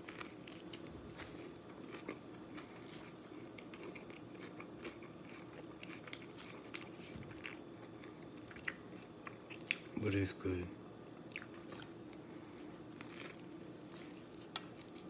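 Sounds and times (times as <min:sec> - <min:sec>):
person chewing food: 0:00.0 - 0:09.9, 0:11.1 - 0:15.0.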